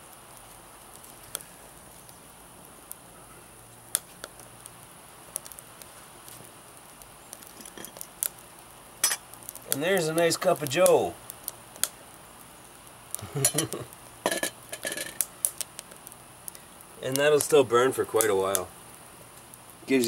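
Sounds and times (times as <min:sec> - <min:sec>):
faint steady hiss: 0:00.0 - 0:20.0
wood fire crackling and popping: 0:00.0 - 0:20.0.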